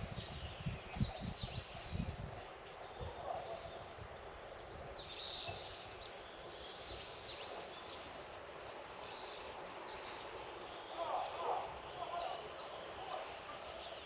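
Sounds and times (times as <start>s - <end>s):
outdoor background hiss: 0.0s - 14.0s
bird chirping: 4.6s - 14.0s.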